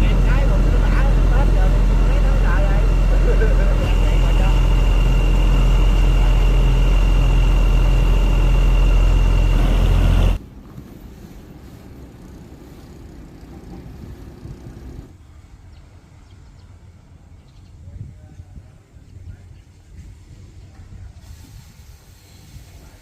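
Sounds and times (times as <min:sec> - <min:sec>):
high engine whine: 0:00.0 - 0:15.2
large engine humming: 0:00.0 - 0:17.4
faint outdoor sound: 0:00.0 - 0:23.0.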